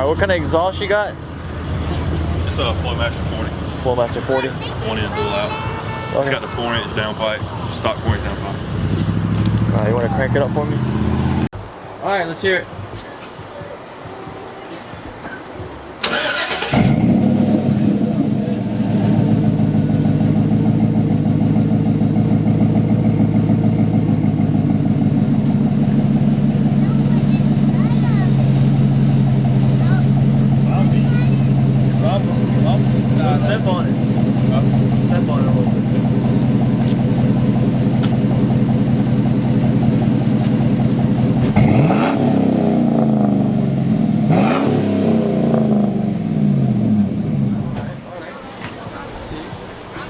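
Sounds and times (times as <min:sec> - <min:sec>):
pickup engine idling: 0:00.3 - 0:11.5, 0:16.0 - 0:41.8.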